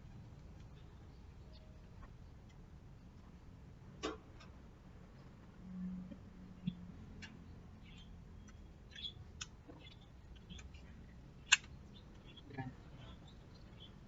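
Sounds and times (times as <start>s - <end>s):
small clicks and taps of fan parts: 6.1s - 7.4s, 8.4s - 12.4s.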